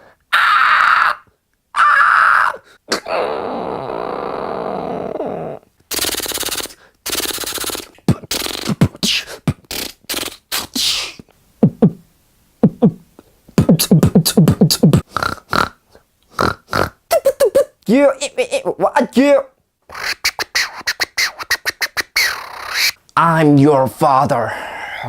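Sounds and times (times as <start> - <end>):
person beatboxing: 5.9 - 12.0, 12.6 - 15.8, 19.9 - 23.0.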